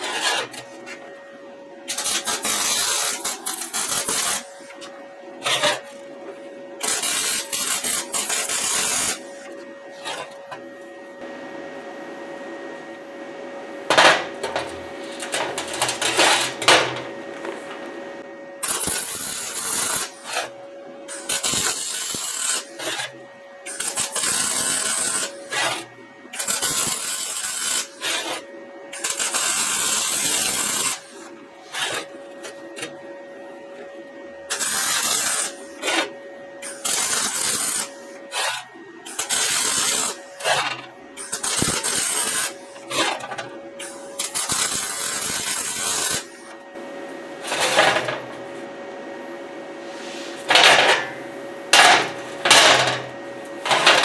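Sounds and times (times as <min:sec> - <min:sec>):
arc welding crackling: 0:01.8 - 0:04.7, 0:06.8 - 0:09.4, 0:13.9 - 0:17.8, 0:18.6 - 0:20.5, 0:21.1 - 0:23.1, 0:23.7 - 0:25.8, 0:26.4 - 0:28.2, 0:29.0 - 0:31.2, 0:34.5 - 0:35.7, 0:36.7 - 0:46.5, 0:47.4 - 0:48.4, 0:49.9 - 0:54.0.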